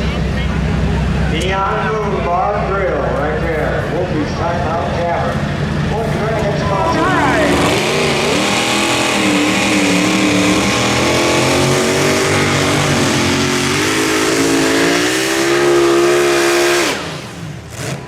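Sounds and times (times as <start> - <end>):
engine revving hard: 5.9 - 18.0.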